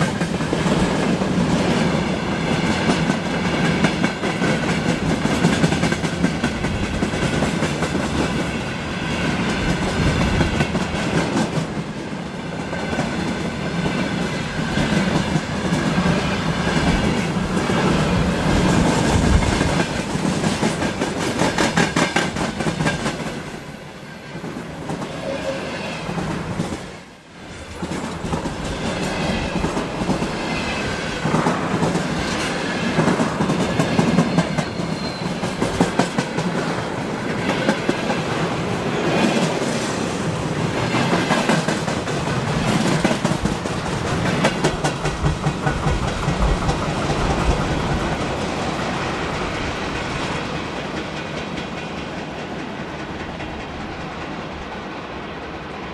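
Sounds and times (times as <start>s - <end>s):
train wagons rolling past: 0.0s - 55.9s
wheels clicking over rail joints: 26.1s - 54.9s.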